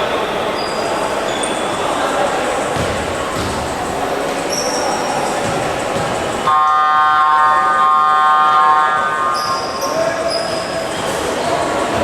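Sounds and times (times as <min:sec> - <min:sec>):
crowd noise: 0:00.0 - 0:12.0
arena horn blast: 0:06.5 - 0:09.5.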